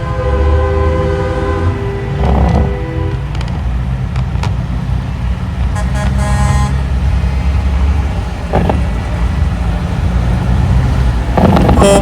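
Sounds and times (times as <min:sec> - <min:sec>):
truck horn blast: 0:00.0 - 0:03.5, 0:05.7 - 0:07.0, 0:11.6 - 0:12.0
diesel trucks rumbling past: 0:00.0 - 0:12.0.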